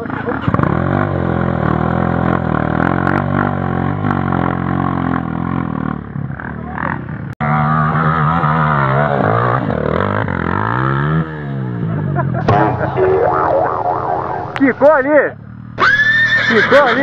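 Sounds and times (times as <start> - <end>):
motorcycle engine revving: 0.0 - 16.7.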